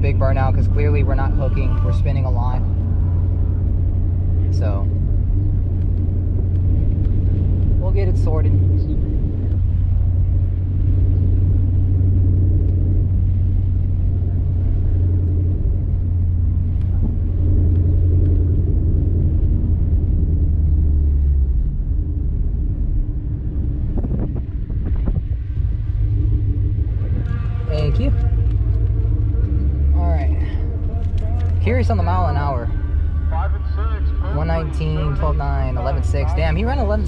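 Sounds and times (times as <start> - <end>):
car exhaust drone: 0.0 - 37.0.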